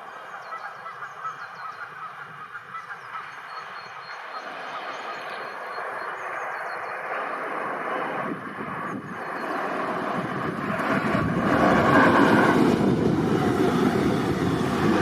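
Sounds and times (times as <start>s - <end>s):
train rumbling: 4.4s - 15.0s.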